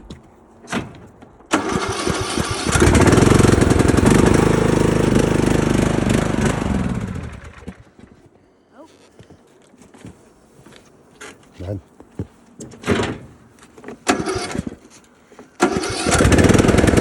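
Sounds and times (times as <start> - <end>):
engine cranking by electric starter: 1.5 - 7.8, 14.0 - 14.8, 15.6 - 17.0.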